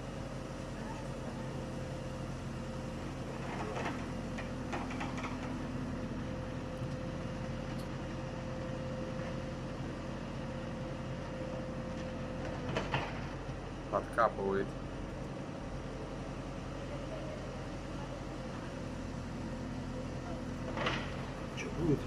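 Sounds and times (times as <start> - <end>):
digging machine engine running: 0.0 - 14.1, 14.7 - 22.0.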